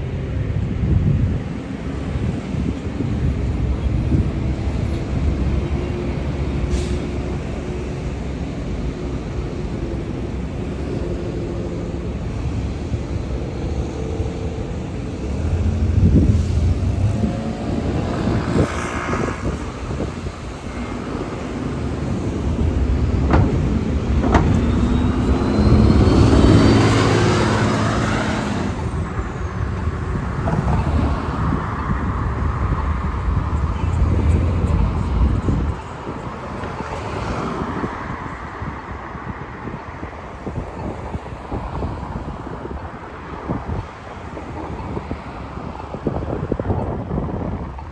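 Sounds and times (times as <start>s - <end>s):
street traffic passing: 0.0s - 47.9s
vehicle passing close: 14.7s - 35.8s.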